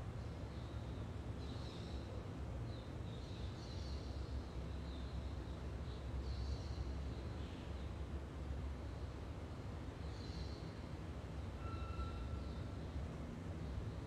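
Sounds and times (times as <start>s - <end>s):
faint bird chirps: 11.6s - 12.7s.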